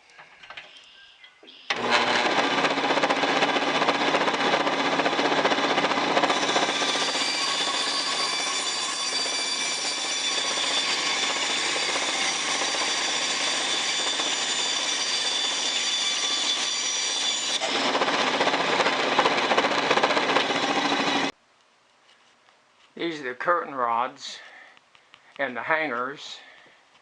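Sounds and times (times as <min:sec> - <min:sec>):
power saw cutting wood: 0:01.7 - 0:21.3.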